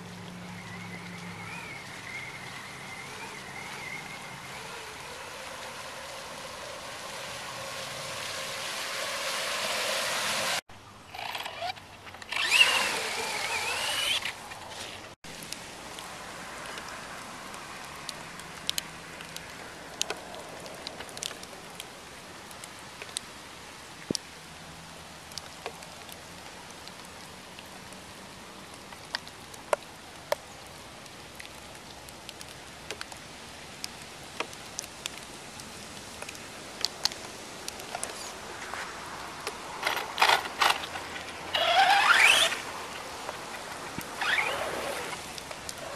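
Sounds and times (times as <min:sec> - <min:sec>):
electric toy truck motor whining: 0:00.6 - 0:05.4, 0:11.1 - 0:14.4, 0:39.8 - 0:42.6, 0:44.2 - 0:45.2.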